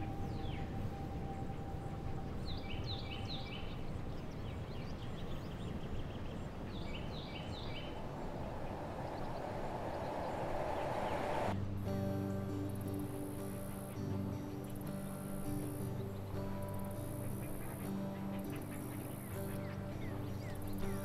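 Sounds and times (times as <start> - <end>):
bird chirping: 0.0 - 11.6, 12.2 - 21.0
faint steady tone: 0.0 - 21.0
steady background hiss: 0.0 - 21.0
rushing swell: 7.6 - 13.8.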